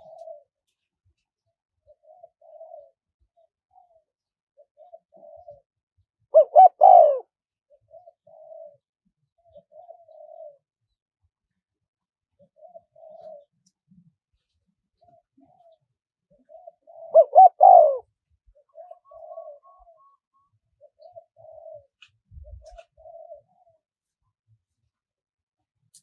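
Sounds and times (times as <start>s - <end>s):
dove cooing: 0.0s - 0.5s, 1.9s - 4.0s, 4.6s - 5.7s, 6.3s - 8.8s, 9.4s - 10.6s, 12.4s - 13.6s, 15.0s - 23.8s.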